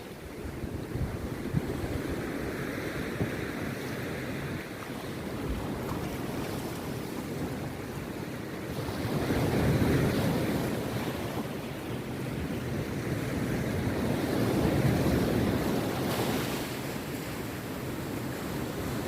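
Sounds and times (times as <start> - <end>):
sea surf breaking on beach: 0.0 - 19.0
wind buffeting microphone: 0.0 - 19.0.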